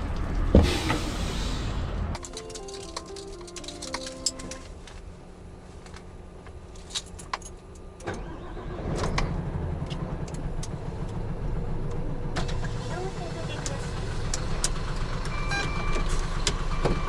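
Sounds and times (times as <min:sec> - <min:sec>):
diesel truck engine starting and running: 0:00.0 - 0:04.6, 0:07.8 - 0:17.0
scattered clicks: 0:02.2 - 0:04.6.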